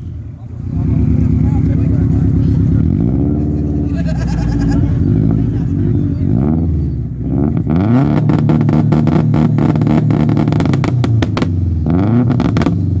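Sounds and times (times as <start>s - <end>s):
car engine revving: 0.0s - 13.0s
exhaust pops and bangs: 8.1s - 11.6s.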